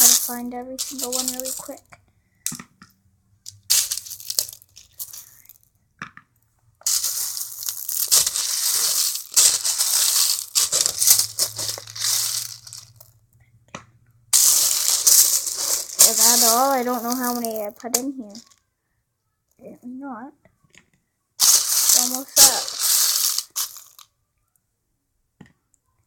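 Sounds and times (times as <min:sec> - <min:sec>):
plastic beads rattling in bucket: 0:00.0 - 0:01.8, 0:03.5 - 0:05.7, 0:06.8 - 0:13.2, 0:14.4 - 0:18.6, 0:21.4 - 0:24.0.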